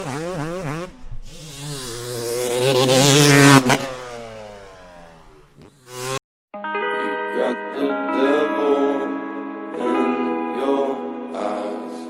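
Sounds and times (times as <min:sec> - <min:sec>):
motocross bike engine revving: 0:00.0 - 0:06.2.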